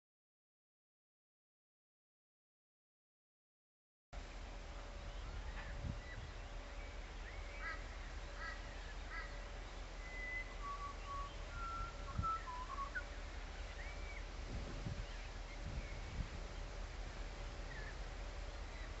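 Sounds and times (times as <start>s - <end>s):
faint steady hum: 4.2s - 19.0s
birds calling: 4.8s - 19.0s.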